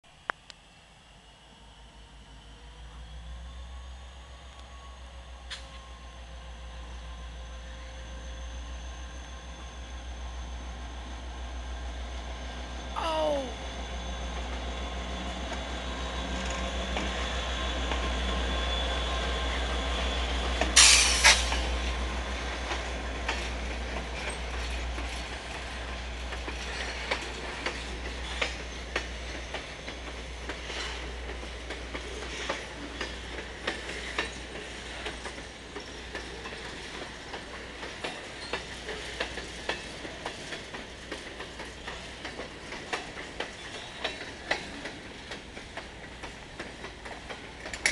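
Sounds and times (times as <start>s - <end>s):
freight cars rolling past: 13.6s - 47.9s.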